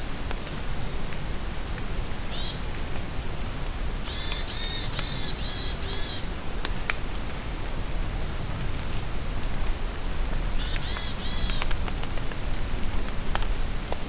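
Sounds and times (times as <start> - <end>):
rain falling in a forest: 0.0 - 14.0
bird calls: 0.4 - 1.6, 2.3 - 3.0, 3.8 - 6.4, 10.6 - 11.8.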